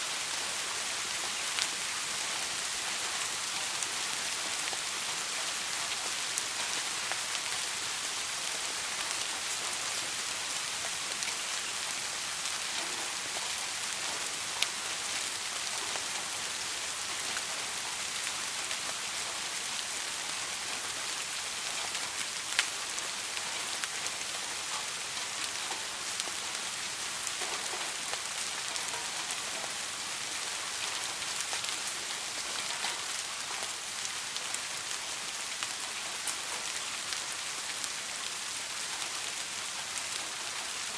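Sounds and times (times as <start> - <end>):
soft rain falling: 0.0 - 40.9.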